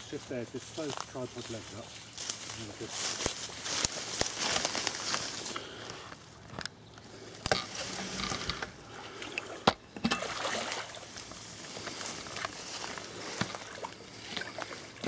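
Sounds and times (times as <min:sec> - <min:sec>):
water splashing and sloshing: 0:07.5 - 0:15.0.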